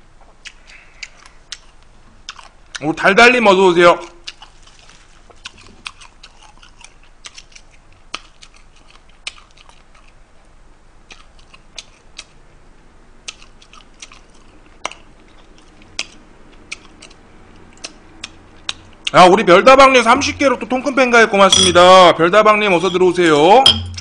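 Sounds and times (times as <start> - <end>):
chewing and crunching: 0.3 - 3.0, 4.0 - 12.4, 13.2 - 19.2.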